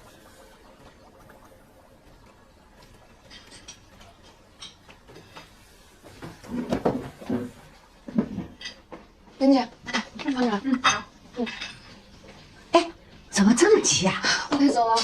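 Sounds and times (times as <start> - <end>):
objects knocking and clattering: 2.8 - 9.2.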